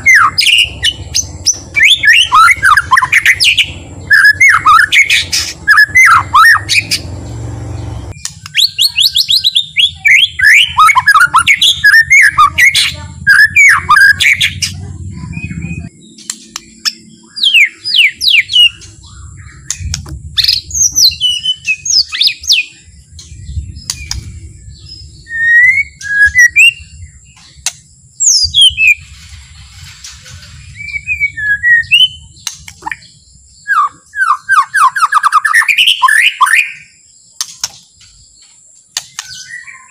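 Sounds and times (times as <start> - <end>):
bird singing whistled notes: 0.0 - 29.2, 30.5 - 39.9.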